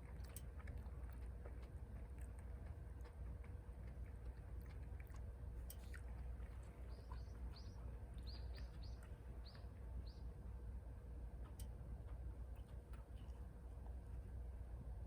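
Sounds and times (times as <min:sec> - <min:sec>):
low background rumble: 0:00.0 - 0:15.0
small bird chirping: 0:06.7 - 0:10.4.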